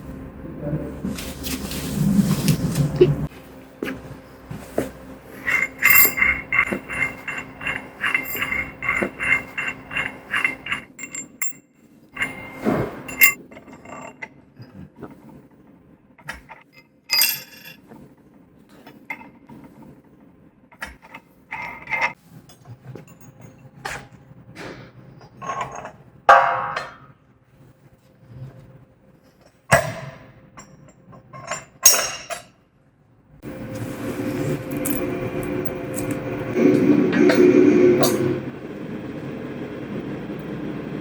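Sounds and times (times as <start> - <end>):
metal clang: 5.4 - 11.6, 12.2 - 13.4, 31.4 - 32.5
metal parts clinking: 5.4 - 11.6, 12.2 - 14.1, 17.1 - 17.8, 33.4 - 36.6.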